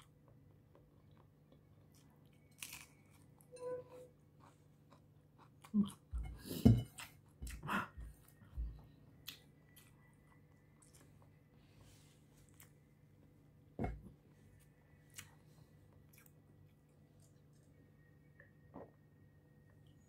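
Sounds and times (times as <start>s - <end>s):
crunchy vegetable chewing: 0.0s - 3.5s, 4.1s - 11.5s, 14.5s - 17.9s.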